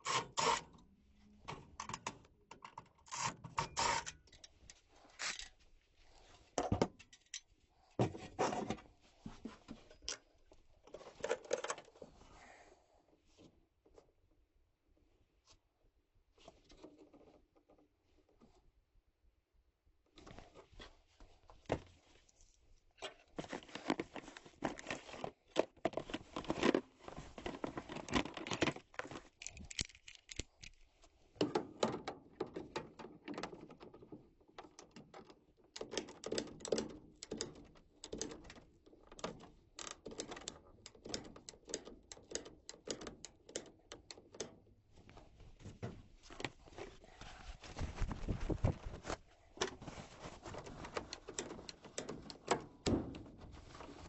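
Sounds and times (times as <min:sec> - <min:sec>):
metallic clicking and rattling of tools: 0:01.8 - 0:05.6, 0:06.6 - 0:07.5, 0:09.8 - 0:11.9, 0:27.8 - 0:34.0, 0:34.6 - 0:44.6.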